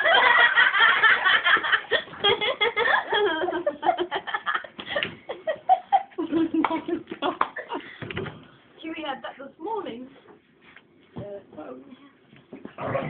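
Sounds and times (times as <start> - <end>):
people laughing: 0.0 - 8.0.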